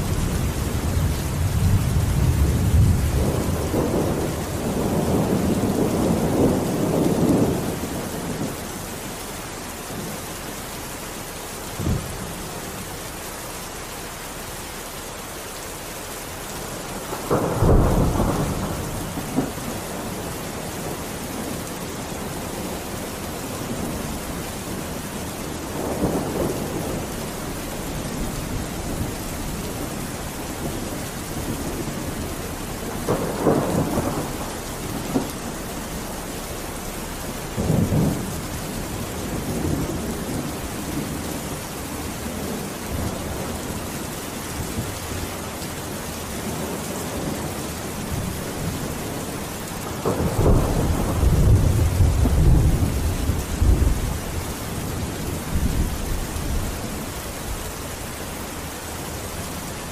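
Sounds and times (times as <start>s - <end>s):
thunder rumbling: 0.0s - 10.7s, 11.5s - 13.2s, 16.5s - 58.1s
heavy rain hiss: 0.0s - 59.9s.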